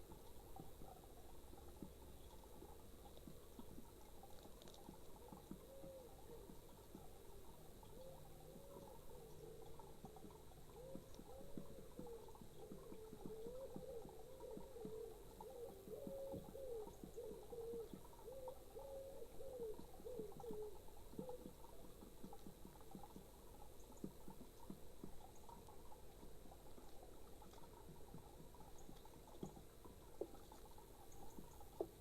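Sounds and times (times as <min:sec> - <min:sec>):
pigeon cooing: 0:10.7 - 0:21.5.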